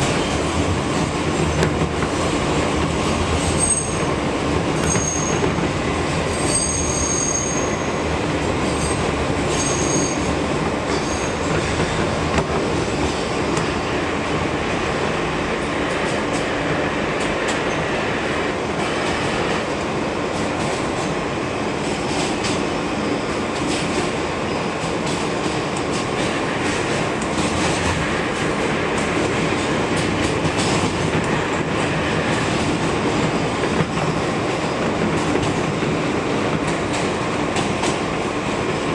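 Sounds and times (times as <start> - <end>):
train wheels rumbling on rail: 0.0 - 38.9
high wheel squeal: 4.8 - 5.5, 6.3 - 8.0, 8.7 - 11.5.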